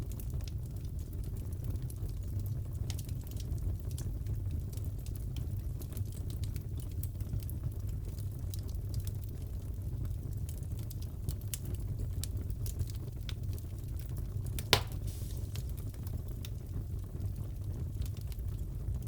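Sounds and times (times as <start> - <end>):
wood fire crackling: 0.0 - 19.0
loud pop of fire: 14.6 - 16.0.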